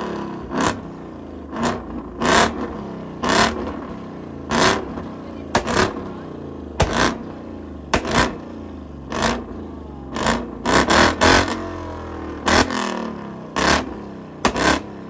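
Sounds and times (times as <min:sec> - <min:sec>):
motorcycle starter cranking: 0:04.5 - 0:09.6.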